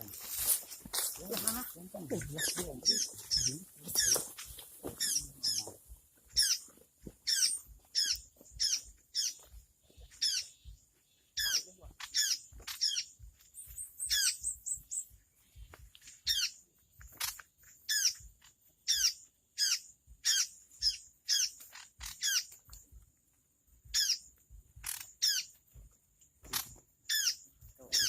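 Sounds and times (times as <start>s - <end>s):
bird calling harshly: 1.1s - 9.4s, 10.1s - 10.6s, 11.2s - 13.2s, 13.8s - 15.0s, 16.2s - 16.6s, 17.9s - 18.2s, 18.9s - 22.5s, 23.9s - 25.6s, 27.1s - 28.0s.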